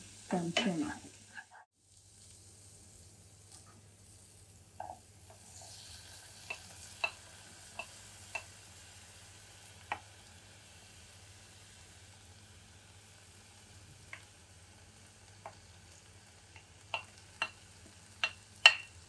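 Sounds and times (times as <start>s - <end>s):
lentils sizzling in a pot: 0.0s - 19.0s
spatula tapping a plate: 4.8s - 5.4s, 6.5s - 8.6s, 9.8s - 10.1s, 16.5s - 19.0s.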